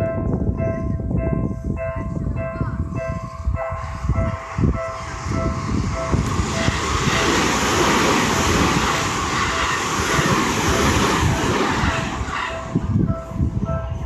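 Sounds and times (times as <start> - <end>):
crossing warning bell: 0.0 - 14.0
train wheel and rail noise: 0.0 - 14.0.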